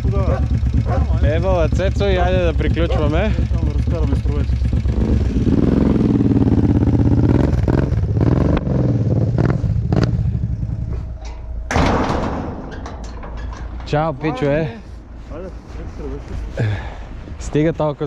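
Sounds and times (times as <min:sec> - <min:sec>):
atv engine running: 0:00.0 - 0:11.7.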